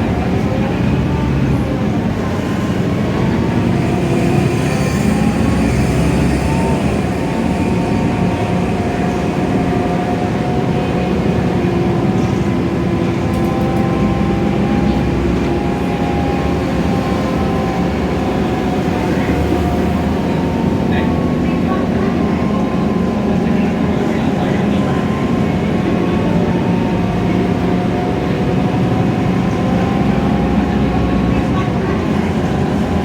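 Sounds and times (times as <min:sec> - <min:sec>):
bus engine hum: 0:00.0 - 0:33.0
road noise: 0:00.0 - 0:33.0
whining tones: 0:03.1 - 0:10.4.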